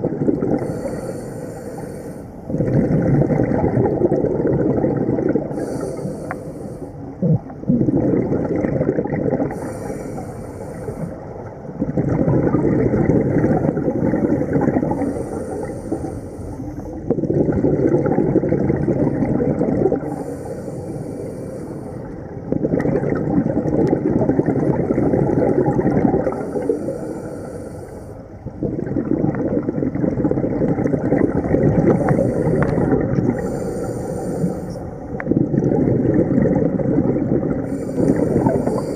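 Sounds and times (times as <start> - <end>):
exhaled bubbles rumbling: 0.0 - 27.5, 28.2 - 38.9
regulator inhalation hiss: 0.6 - 2.3, 5.5 - 7.0, 9.6 - 11.2, 20.1 - 22.1, 26.4 - 28.2, 32.0 - 34.9, 37.7 - 38.9.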